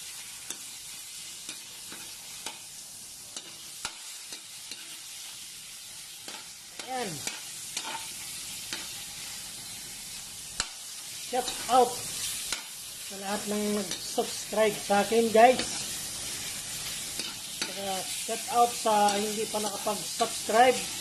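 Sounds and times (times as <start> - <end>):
pork fat sizzling in a wok: 0.0 - 21.0
spatula scraping and tapping pan: 0.4 - 0.8, 1.4 - 2.7, 3.3 - 5.0, 6.2 - 9.0, 10.6 - 10.8, 11.4 - 12.8, 15.4 - 18.2.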